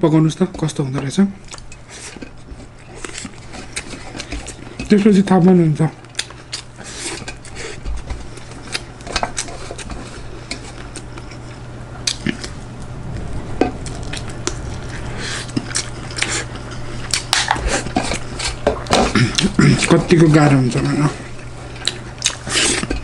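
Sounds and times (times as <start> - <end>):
low hum: 8.3 - 19.5.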